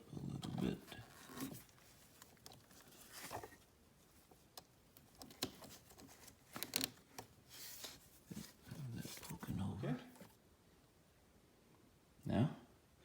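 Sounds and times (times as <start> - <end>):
cable rustling: 0.6 - 10.4.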